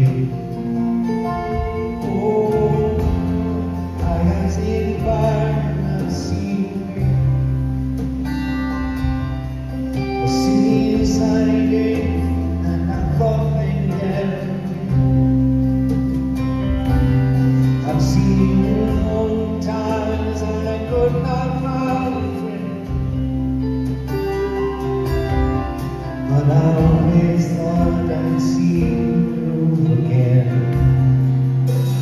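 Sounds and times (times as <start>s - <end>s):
person singing: 0.0s - 7.8s, 8.9s - 15.4s, 17.3s - 23.3s, 24.5s - 32.0s
bass: 0.0s - 32.0s
guitar: 0.0s - 32.0s.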